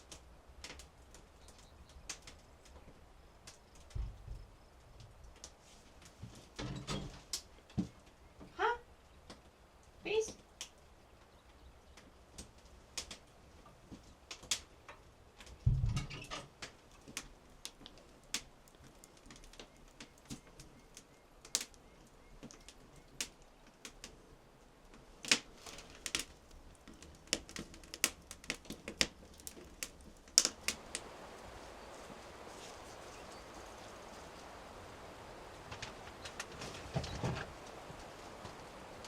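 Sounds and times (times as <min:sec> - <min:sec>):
steady hiss: 0:14.2 - 0:39.0
heavy thump: 0:15.6 - 0:16.1.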